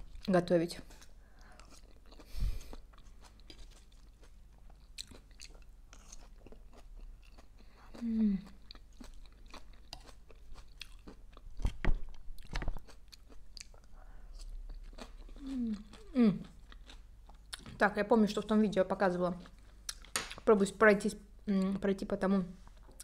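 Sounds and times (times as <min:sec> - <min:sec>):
close-up chewing: 0:00.0 - 0:17.8.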